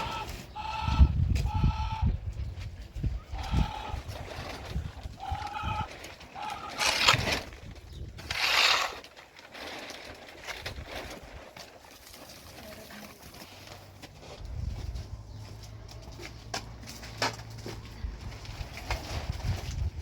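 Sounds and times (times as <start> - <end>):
animal calling: 0.0 - 2.1, 3.2 - 4.6, 5.2 - 7.4
rustling: 4.0 - 15.1.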